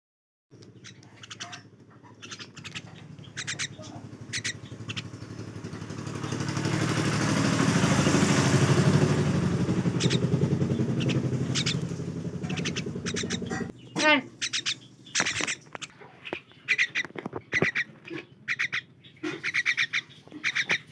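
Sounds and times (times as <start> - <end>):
myna chirping: 0.6 - 20.9
passing vehicle engine hum: 0.7 - 15.9.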